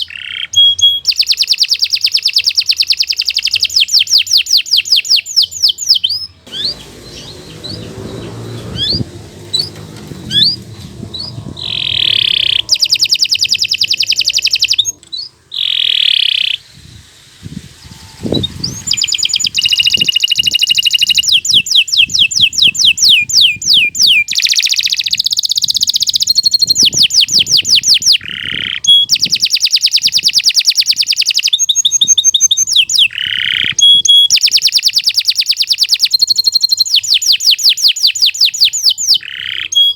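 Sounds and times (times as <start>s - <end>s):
canary singing trills: 0.0s - 16.7s, 17.7s - 39.9s
faint low rumble: 6.3s - 13.7s.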